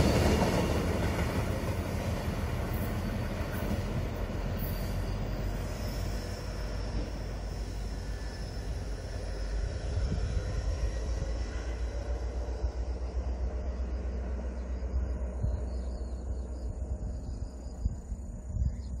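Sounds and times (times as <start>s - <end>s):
insects buzzing: 0.0s - 19.0s
passenger train rumbling on track: 0.0s - 19.0s
steady low rumble: 6.6s - 19.0s.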